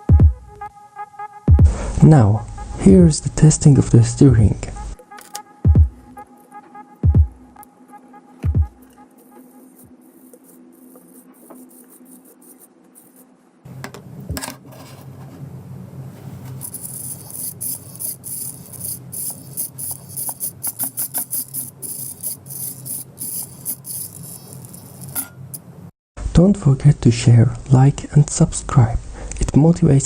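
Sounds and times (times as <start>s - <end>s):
steady low hum: 1.5s - 29.4s
servo buzzing and ticking: 16.6s - 25.6s.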